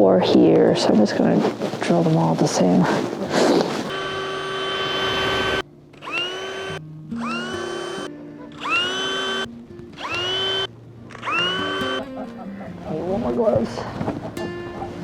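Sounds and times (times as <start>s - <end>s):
power drill whining: 3.0s - 12.2s.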